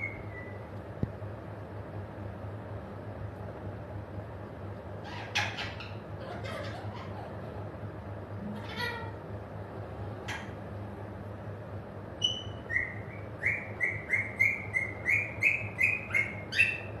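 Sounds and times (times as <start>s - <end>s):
parrot chirping: 0.0s - 0.6s, 5.0s - 7.4s, 12.2s - 16.9s.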